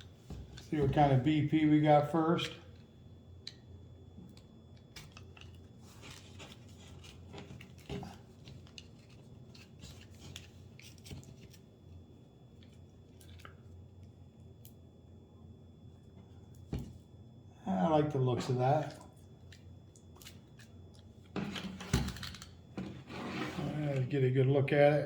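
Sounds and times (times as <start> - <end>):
paper rustling: 5.1 - 11.6.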